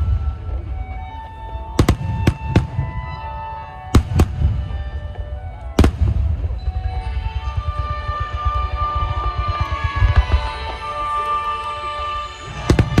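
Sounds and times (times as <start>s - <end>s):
fireworks bangs: 0.0s - 13.0s
music with long held tones: 0.0s - 13.0s.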